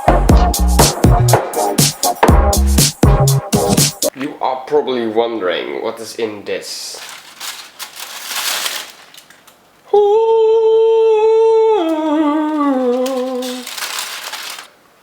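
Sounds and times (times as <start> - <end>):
person humming a long note: 9.9 - 13.7.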